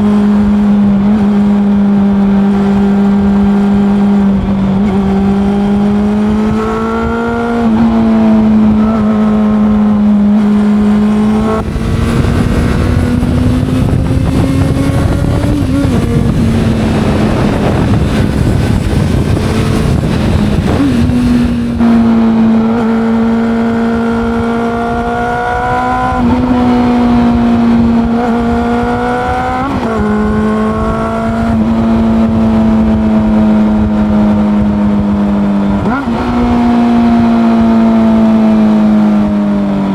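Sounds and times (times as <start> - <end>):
motorcycle engine running: 0.0 - 39.9
loud rushing noise: 10.5 - 26.4.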